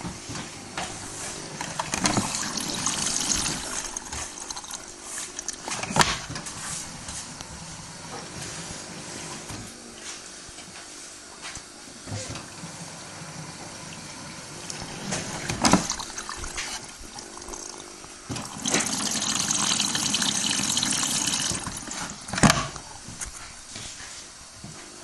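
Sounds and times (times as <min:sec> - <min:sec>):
washing machine running: 0:00.0 - 0:24.8
water rushing into washing machine: 0:00.7 - 0:09.5, 0:12.0 - 0:23.1.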